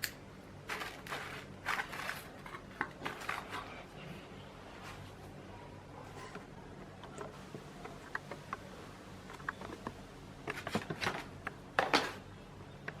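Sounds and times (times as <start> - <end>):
parts clattering: 0.0 - 3.9
steady low hum: 0.0 - 13.0.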